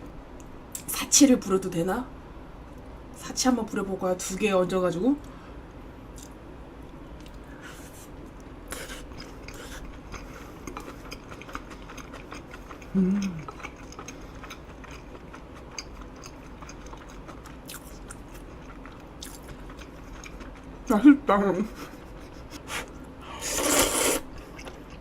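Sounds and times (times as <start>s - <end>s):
person chewing food: 8.3s - 20.8s, 22.1s - 25.0s
person humming: 12.9s - 13.4s.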